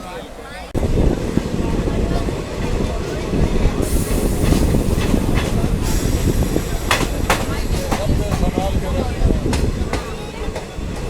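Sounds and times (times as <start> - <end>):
train wheels rumbling on rails: 0.0 - 11.0
hiss: 3.8 - 8.0.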